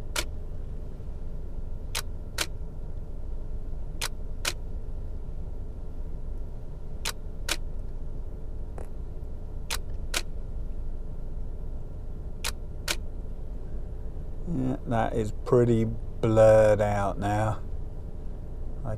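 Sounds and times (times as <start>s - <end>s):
low rumble inside car: 0.0s - 18.9s
camera shutter clicks: 9.7s - 10.3s.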